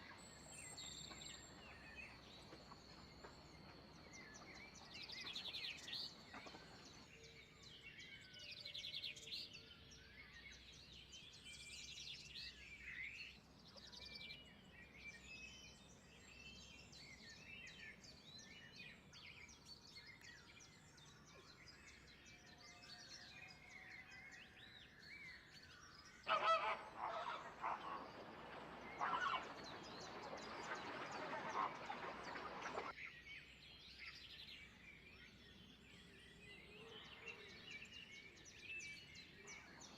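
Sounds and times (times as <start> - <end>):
small birds chirping: 0.0 - 7.1, 13.7 - 39.9
large bird calling: 26.3 - 32.9.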